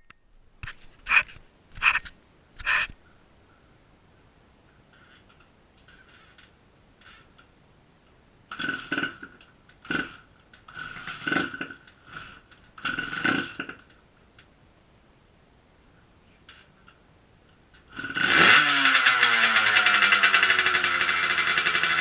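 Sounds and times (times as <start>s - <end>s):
dirt bike engine kick-start bursts: 8.5s - 13.8s, 17.9s - 22.0s.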